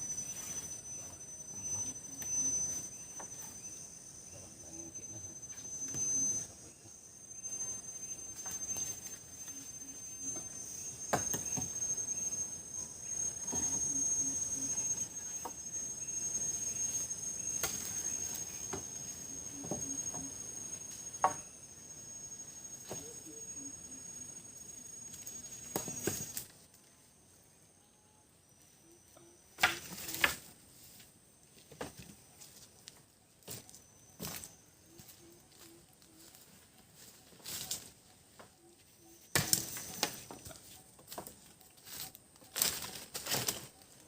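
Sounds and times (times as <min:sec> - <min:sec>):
insects chirring: 0:00.0 - 0:44.0.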